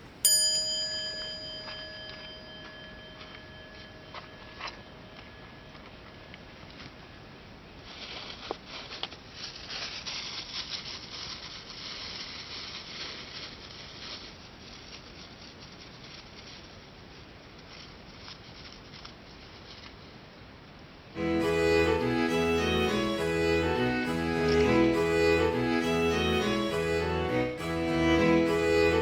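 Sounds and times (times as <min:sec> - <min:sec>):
bowed-string background music: 0:21.2 - 0:29.0.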